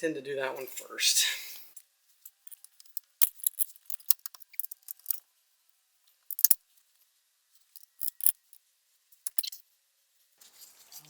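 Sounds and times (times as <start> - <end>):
metal tools clicking and knocking: 2.3 - 5.2, 6.3 - 6.6, 7.8 - 8.6, 9.3 - 9.6.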